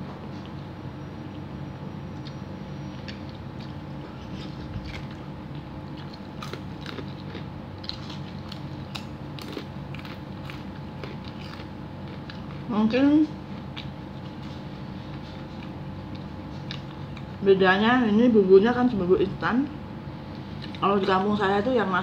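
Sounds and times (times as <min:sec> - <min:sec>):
low hum: 0:00.0 - 0:22.0
person chewing: 0:02.1 - 0:12.7, 0:13.4 - 0:17.4, 0:20.3 - 0:20.8.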